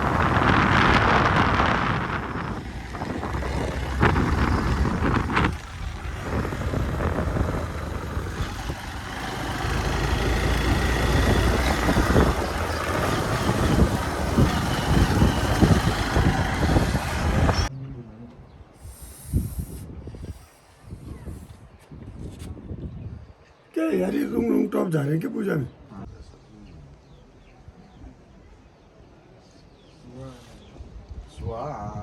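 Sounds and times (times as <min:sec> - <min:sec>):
motorcycle engine running: 0:00.0 - 0:17.7
wind buffeting microphone: 0:00.0 - 0:17.7, 0:18.9 - 0:23.4.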